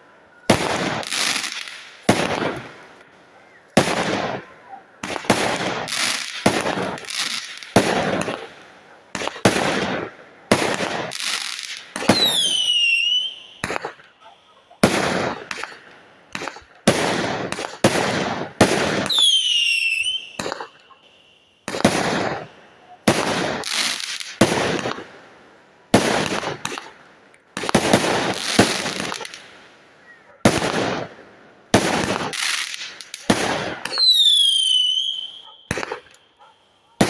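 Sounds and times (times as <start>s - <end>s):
fireworks bangs: 0.4s - 25.3s, 25.9s - 37.0s
firework whistle gliding down: 12.1s - 13.6s, 19.1s - 20.4s, 33.9s - 35.5s.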